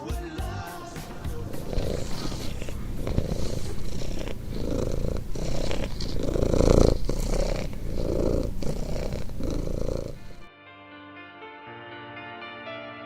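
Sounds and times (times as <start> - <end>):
cat purring: 1.3 - 10.5.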